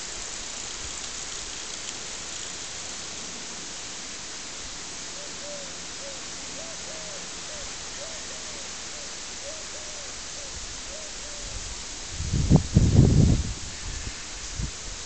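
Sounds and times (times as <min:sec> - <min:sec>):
rain-like hiss: 0:00.0 - 0:15.0
bird hooting: 0:05.2 - 0:11.5.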